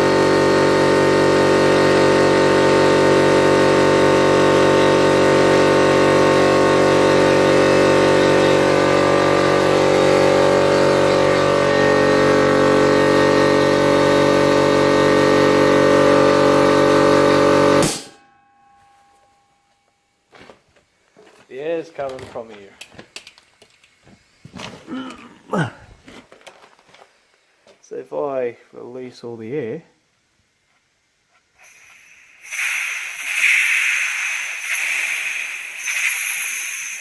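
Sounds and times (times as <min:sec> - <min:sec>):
air compressor motor running: 0:00.0 - 0:18.2, 0:24.1 - 0:26.2, 0:31.5 - 0:37.0.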